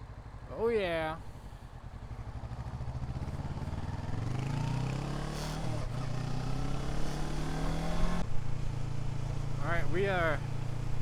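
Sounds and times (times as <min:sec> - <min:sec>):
motorcycle engine accelerating: 0:01.8 - 0:08.3.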